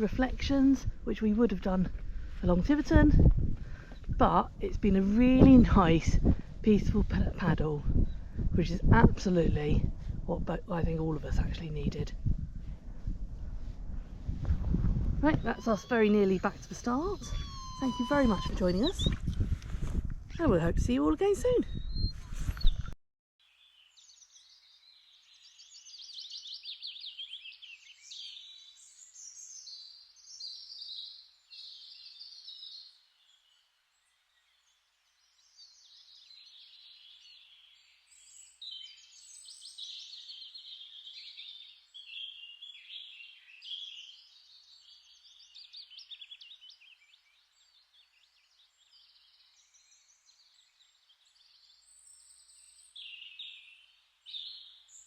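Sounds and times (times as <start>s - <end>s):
songbirds twittering: 0.0s - 12.4s, 14.4s - 19.8s, 20.4s - 55.0s.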